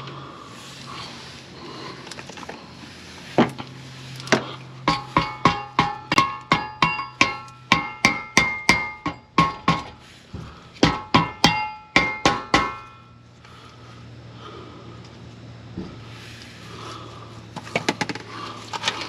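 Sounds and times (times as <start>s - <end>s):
hammer on ringing metal: 4.8s - 10.0s, 10.8s - 13.2s.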